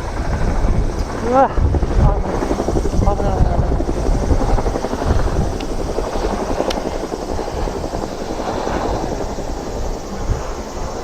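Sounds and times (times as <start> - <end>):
wind buffeting microphone: 0.0 - 11.0
faint clicks: 6.5 - 6.9.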